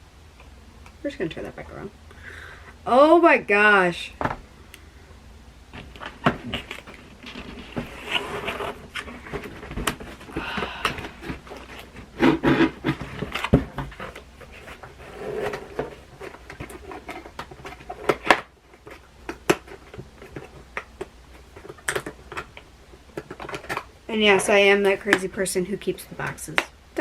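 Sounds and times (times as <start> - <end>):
packaging rustling: 5.7 - 24.0.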